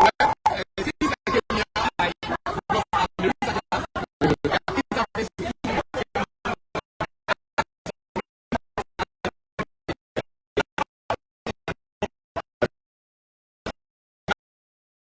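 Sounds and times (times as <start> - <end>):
stuttering audio fragments: 0.0 - 6.2.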